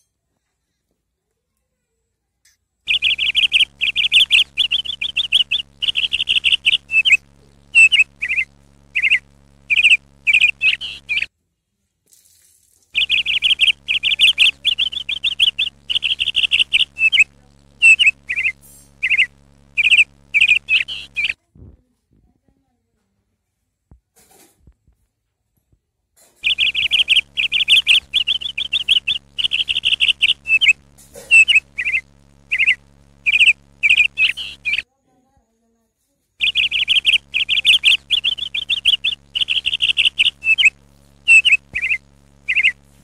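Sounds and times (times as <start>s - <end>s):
faint steady hum: 2.4s - 11.3s, 13.0s - 22.7s, 26.3s - 35.4s, 36.4s - 43.0s
sparrows chirping in alarm: 2.9s - 11.3s, 13.0s - 21.4s, 26.4s - 34.8s, 36.4s - 43.0s.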